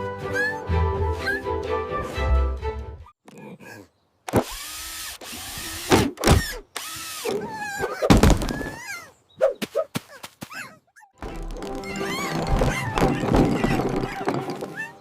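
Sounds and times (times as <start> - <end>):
power drill running: 4.3 - 7.4.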